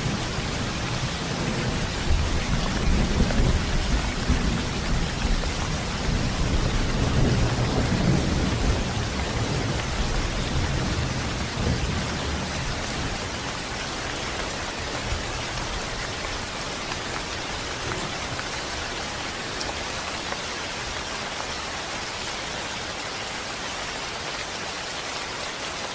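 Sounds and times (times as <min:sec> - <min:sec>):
rolling thunder: 0:00.0 - 0:13.5
steady rain falling: 0:00.0 - 0:25.9.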